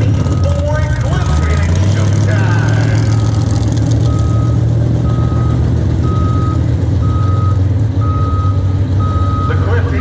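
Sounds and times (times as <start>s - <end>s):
heavy engine rumbling: 0.0s - 10.0s
backup alarm beeping: 4.1s - 9.8s.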